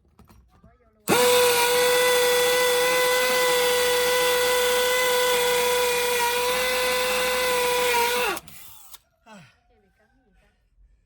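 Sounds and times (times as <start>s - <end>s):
electric drill boring into hard wall: 1.1s - 9.0s.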